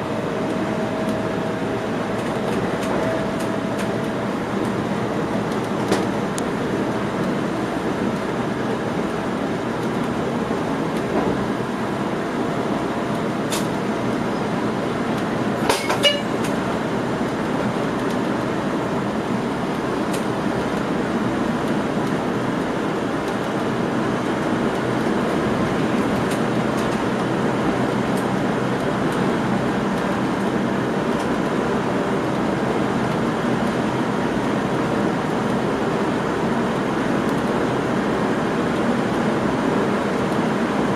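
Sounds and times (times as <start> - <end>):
moving train running noise: 0.0 - 40.9.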